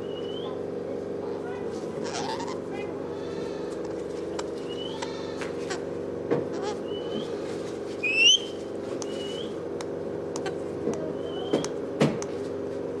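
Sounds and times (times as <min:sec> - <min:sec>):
steady low hum: 0:00.0 - 0:13.0
parrot whistling: 0:04.7 - 0:05.1, 0:08.0 - 0:09.6.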